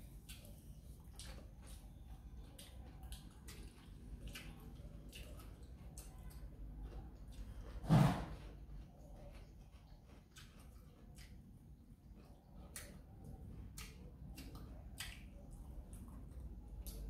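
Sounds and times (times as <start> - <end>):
chewing and mouth smacks: 0.0 - 17.0
thump: 7.8 - 8.4.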